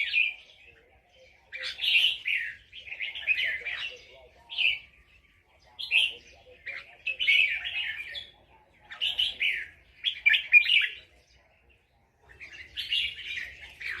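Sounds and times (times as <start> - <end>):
bulbul singing warbled phrases: 0.0 - 14.0.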